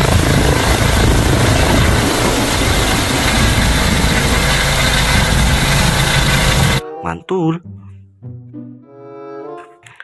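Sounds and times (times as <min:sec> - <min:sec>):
helicopter rotor and engine: 0:00.0 - 0:06.8.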